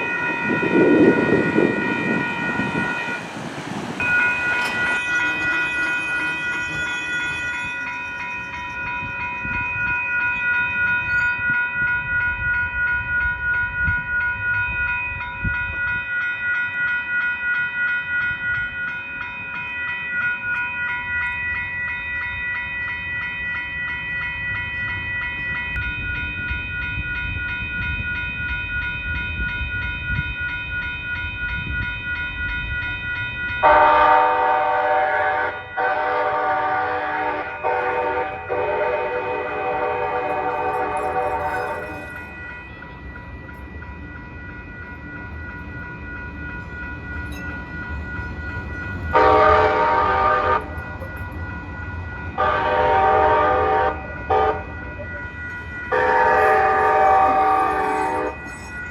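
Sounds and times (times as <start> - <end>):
crossing warning bells ringing: 0.0 - 58.9
passing train rumble: 0.0 - 58.9
train horn blasts: 33.6 - 41.6, 49.1 - 50.8, 52.4 - 54.8, 55.9 - 58.6.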